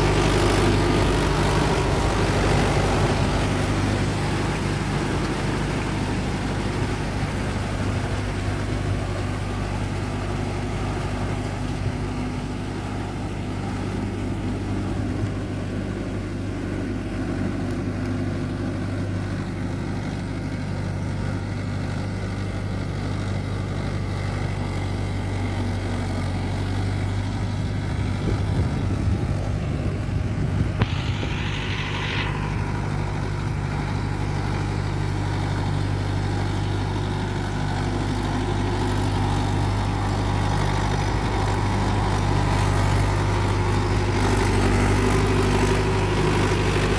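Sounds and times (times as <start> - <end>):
tractor diesel engine running: 0.0 - 46.9
brief hiss: 30.8 - 33.9.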